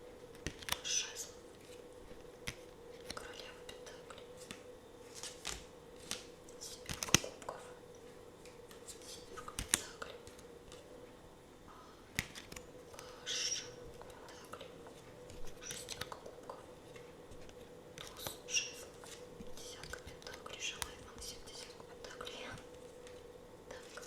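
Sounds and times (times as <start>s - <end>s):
faint steady hum: 0.0s - 24.0s
cards sliding and rustling: 0.3s - 0.8s, 4.4s - 7.3s, 12.1s - 12.7s, 15.0s - 16.1s, 16.9s - 21.8s
cards tapping and clicking: 0.3s - 0.8s, 4.4s - 7.4s, 8.4s - 10.9s, 12.1s - 13.1s, 15.3s - 16.2s, 19.0s - 21.8s.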